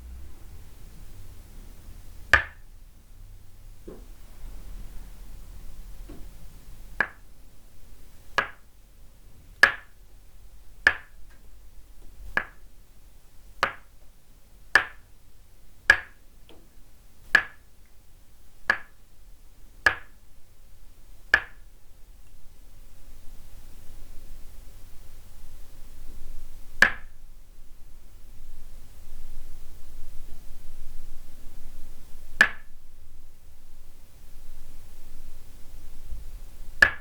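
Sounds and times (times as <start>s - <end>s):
wooden mallet tapping wooden peg: 2.3s - 2.6s, 7.0s - 7.2s, 8.4s - 8.7s, 9.6s - 10.0s, 10.8s - 11.4s, 12.4s - 12.6s, 13.6s - 13.9s, 14.8s - 15.0s, 15.9s - 16.6s, 17.3s - 17.6s, 18.7s - 19.0s, 19.8s - 20.2s, 21.3s - 21.6s, 26.8s - 27.2s, 32.4s - 32.7s, 36.8s - 37.0s.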